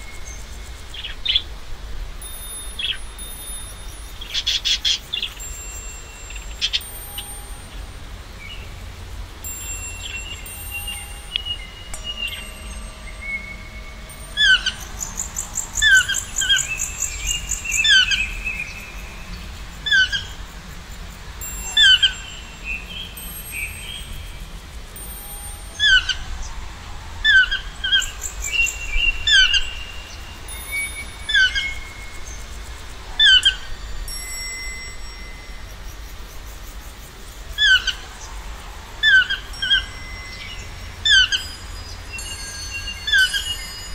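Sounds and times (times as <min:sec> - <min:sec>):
thin whistled bird notes: 0:00.0 - 0:01.6, 0:02.2 - 0:43.9
high buzzy bird trill: 0:02.2 - 0:36.8, 0:37.4 - 0:43.9
birds chirping: 0:02.3 - 0:24.4.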